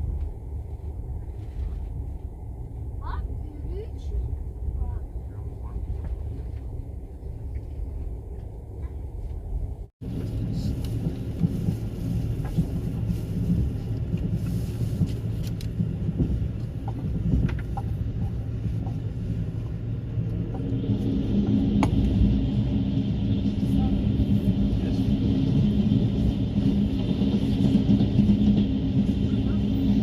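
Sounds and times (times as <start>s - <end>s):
passenger train rumbling: 0.0s - 30.0s
train track clicks: 10.1s - 21.0s, 25.4s - 30.0s.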